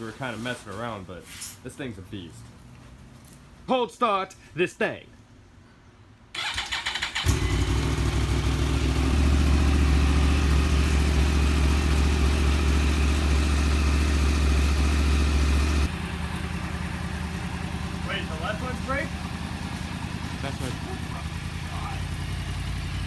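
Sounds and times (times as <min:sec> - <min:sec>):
motorcycle engine idling: 0:07.1 - 0:23.0.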